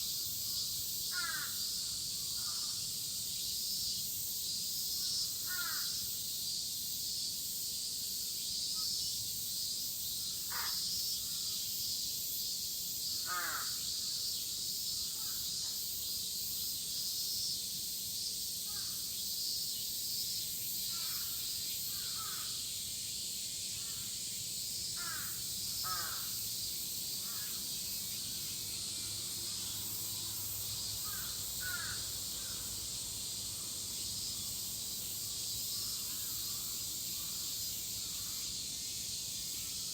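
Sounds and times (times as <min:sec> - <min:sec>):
cicadas shrilling: 0:00.0 - 0:39.9
crows cawing: 0:01.1 - 0:01.6, 0:05.5 - 0:05.9, 0:10.5 - 0:10.8, 0:13.2 - 0:13.8, 0:22.0 - 0:22.6, 0:25.0 - 0:26.4, 0:31.0 - 0:32.7.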